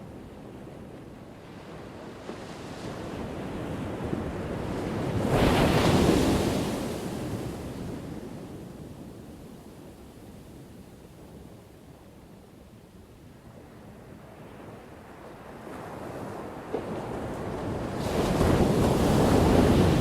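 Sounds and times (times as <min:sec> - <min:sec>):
ocean waves crashing on shore: 0:02.0 - 0:08.2, 0:16.4 - 0:20.0.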